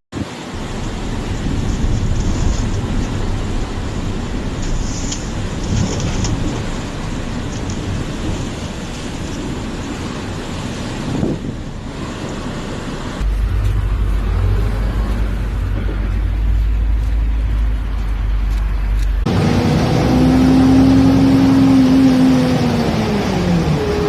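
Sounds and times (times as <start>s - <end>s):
wind buffeting microphone: 0.2s - 19.4s
strong wind blowing: 0.2s - 24.0s.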